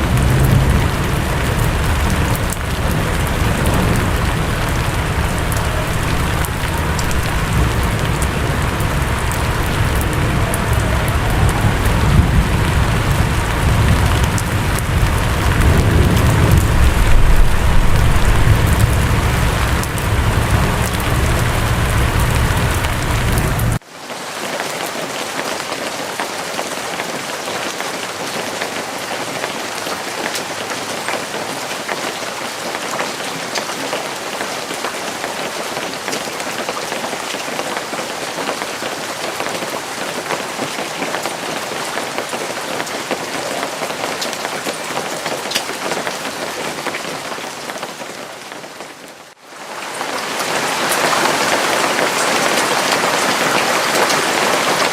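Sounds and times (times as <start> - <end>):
deep rumble: 0.0 - 23.8
steady rain falling: 0.0 - 54.9.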